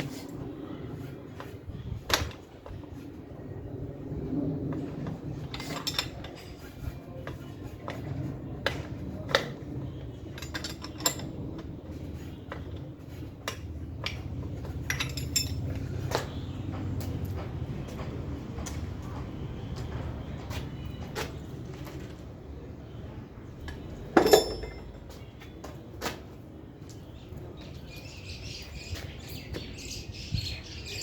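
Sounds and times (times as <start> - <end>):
metal tools clinking: 5.4 - 6.8, 10.2 - 11.7, 13.4 - 16.1, 24.2 - 25.2.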